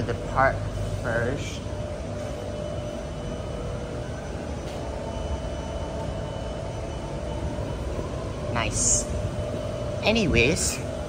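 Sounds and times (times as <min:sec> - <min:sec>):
faint steady tones: 0:00.0 - 0:11.0
train mechanical hum: 0:00.0 - 0:11.0.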